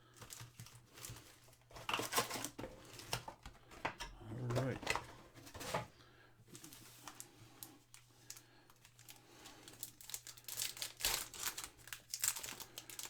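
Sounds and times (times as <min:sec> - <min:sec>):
wrappers crinkling and tearing: 0:00.0 - 0:03.4, 0:06.5 - 0:13.0
cards rustling and clicking: 0:00.1 - 0:05.7.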